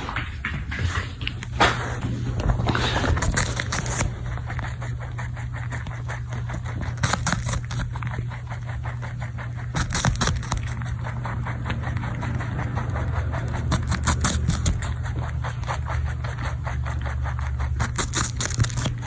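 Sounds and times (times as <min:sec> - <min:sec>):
rustling: 0:00.0 - 0:12.4
rabbit chewing food: 0:00.0 - 0:19.0
steady low hum: 0:00.0 - 0:19.0.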